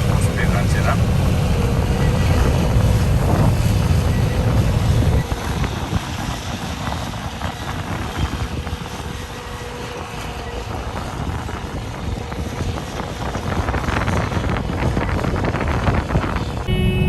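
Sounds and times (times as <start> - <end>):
faint steady whine: 0.0 - 5.2, 16.7 - 17.0
combine harvester rumbling: 0.0 - 5.6, 16.7 - 17.0.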